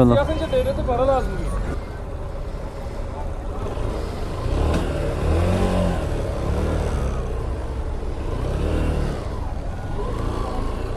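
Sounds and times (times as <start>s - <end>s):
motorcycle engine revving: 3.4s - 10.9s.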